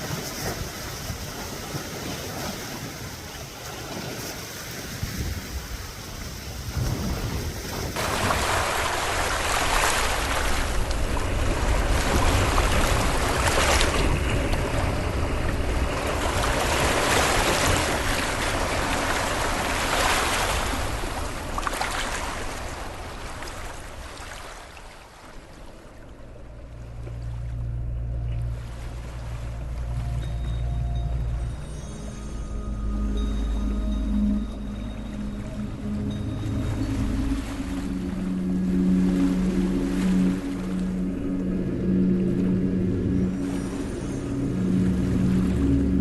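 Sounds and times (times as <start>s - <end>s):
wind rumbling on microphone: 0.0s - 24.2s
small waves washing onto shore: 0.0s - 27.6s.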